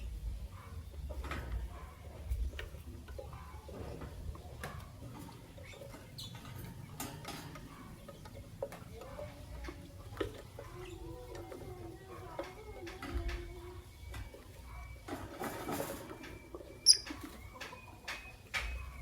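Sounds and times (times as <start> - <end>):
lovebirds chirping: 12.0 - 19.0.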